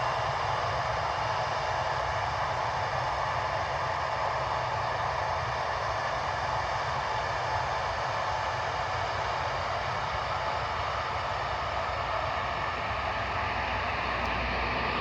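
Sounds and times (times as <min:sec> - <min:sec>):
jet engines running: 0:09.4 - 0:15.0.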